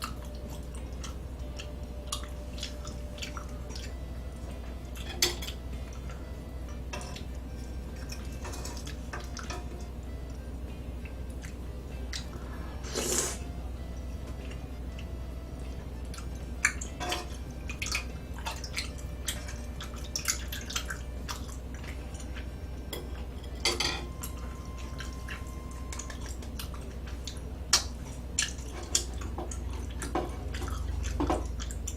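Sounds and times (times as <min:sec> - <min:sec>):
chewing: 0:00.0 - 0:06.2, 0:11.0 - 0:13.5, 0:14.2 - 0:22.6, 0:24.2 - 0:31.9
utensils clinking against dishes: 0:00.0 - 0:09.9, 0:16.1 - 0:31.9
steady low hum: 0:00.0 - 0:31.9.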